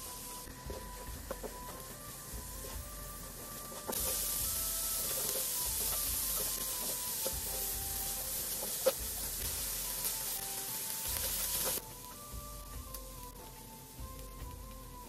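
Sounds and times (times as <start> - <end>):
onions sizzling in a pan: 0.0 - 15.0
quiet background music: 0.0 - 15.0
wooden spatula knocking pan: 0.6 - 10.1.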